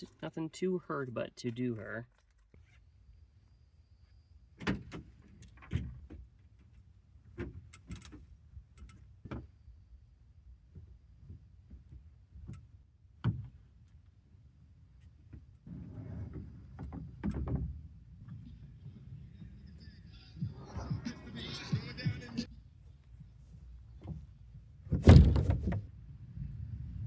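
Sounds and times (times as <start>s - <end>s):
low steady rumble: 15.6s - 27.0s.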